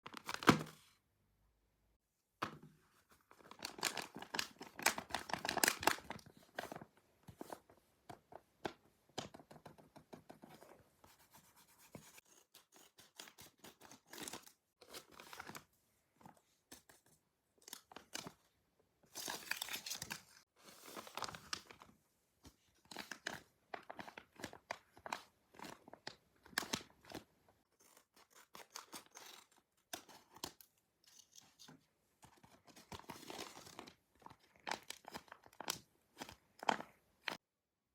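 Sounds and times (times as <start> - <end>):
paper crinkling and tearing: 3.4 - 6.8.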